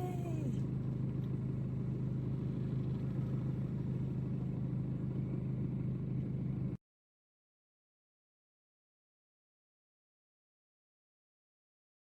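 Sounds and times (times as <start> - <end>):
low rumbling hum: 0.0 - 6.8.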